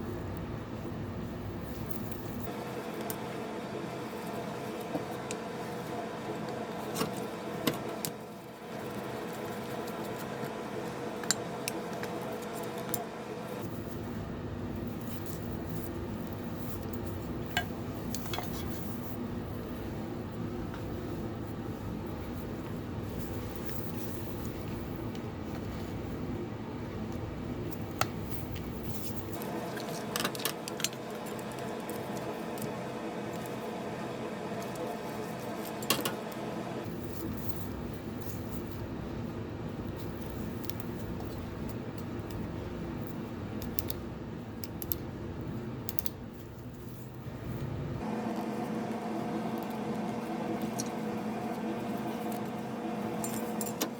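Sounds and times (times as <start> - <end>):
steady hum: 0.0 - 53.9
fan parts clicking: 14.8 - 26.1, 39.8 - 47.8
metal parts clicking and clinking: 53.2 - 53.9.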